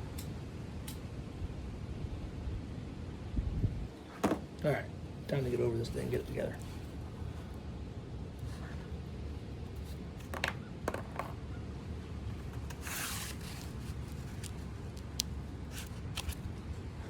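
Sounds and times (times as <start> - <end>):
wind rumble on microphone: 1.3 - 4.1
short scrape: 12.7 - 13.9.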